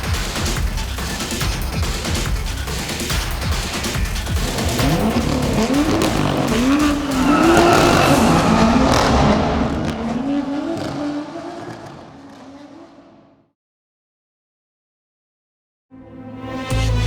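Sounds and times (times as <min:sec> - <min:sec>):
car engine accelerating hard: 0:04.0 - 0:13.4.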